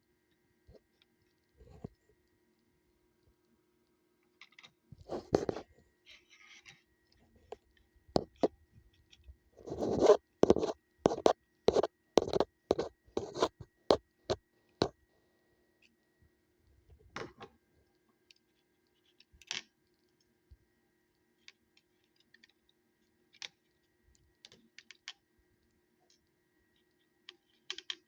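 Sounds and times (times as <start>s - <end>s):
plastic scrapes: 5.0s - 6.6s, 9.6s - 13.7s.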